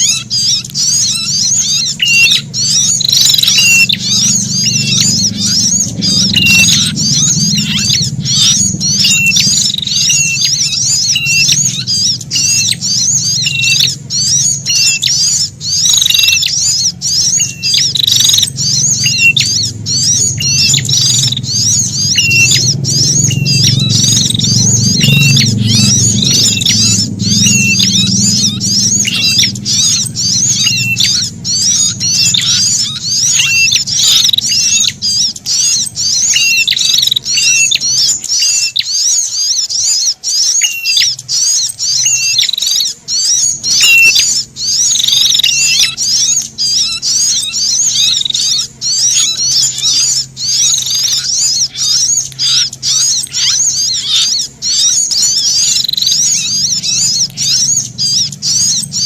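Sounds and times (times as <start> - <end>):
bird alarm chirps: 0.0 - 59.0
faint low hum: 0.0 - 59.0.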